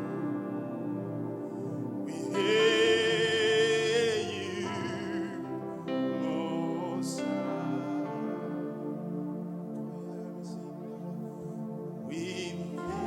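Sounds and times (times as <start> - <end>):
sustained musical accompaniment: 0.0 - 13.0
person singing with vibrato: 2.0 - 8.9, 12.1 - 13.0.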